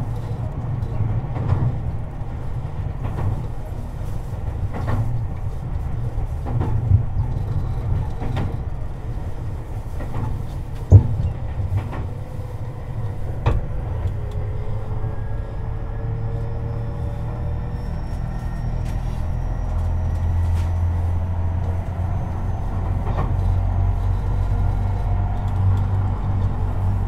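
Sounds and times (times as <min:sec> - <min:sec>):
wheels clicking over rail joints: 0:00.0 - 0:15.0
train rumbling: 0:00.0 - 0:27.0.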